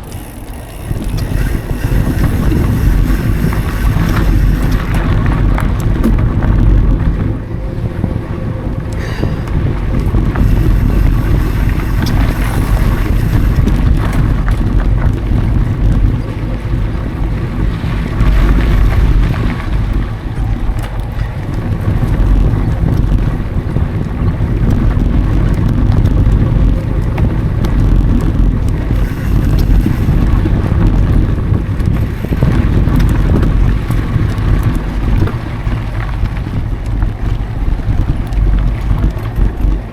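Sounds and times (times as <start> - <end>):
bike rattles and clicks: 0.0 - 39.9
wind buffeting microphone: 0.0 - 39.9.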